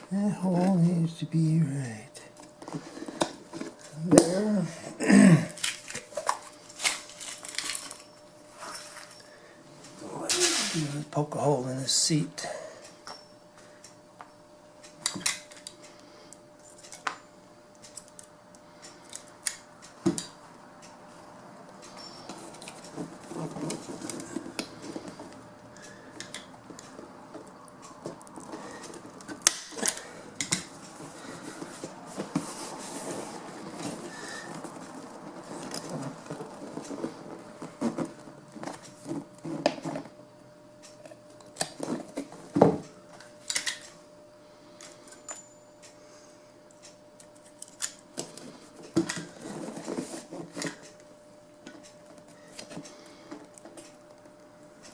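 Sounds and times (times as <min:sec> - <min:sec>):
vinyl cover rustling: 0:31.0 - 0:40.1.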